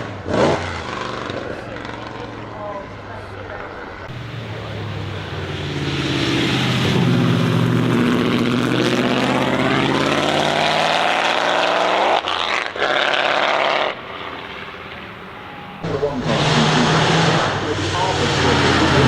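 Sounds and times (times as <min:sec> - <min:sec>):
race car engine accelerating: 0:00.0 - 0:19.0.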